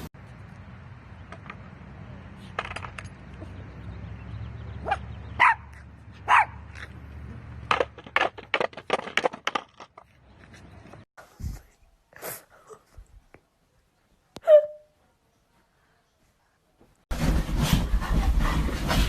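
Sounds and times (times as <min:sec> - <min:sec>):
dog barking: 0:04.8 - 0:06.6, 0:14.4 - 0:14.9.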